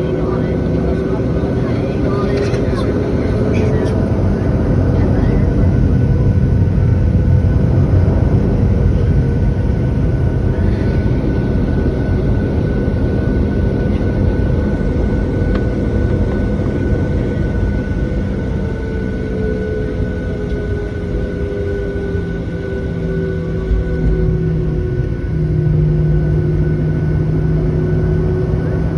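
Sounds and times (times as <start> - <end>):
jet engine rumble and whine: 0.0 - 28.9.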